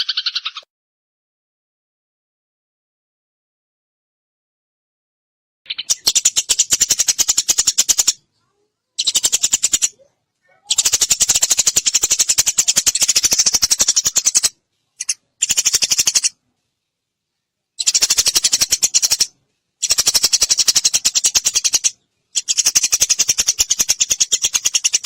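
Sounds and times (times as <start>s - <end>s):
sparrow chattering call: 0.0s - 0.6s, 5.7s - 8.2s, 9.0s - 10.0s, 10.6s - 16.4s, 17.8s - 25.0s.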